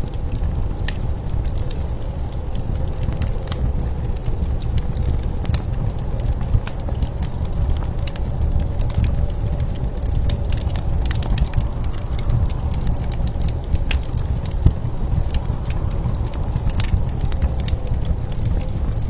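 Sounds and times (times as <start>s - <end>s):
low blizzard wind: 0.0s - 19.0s
wood fire crackling and popping: 0.0s - 19.0s.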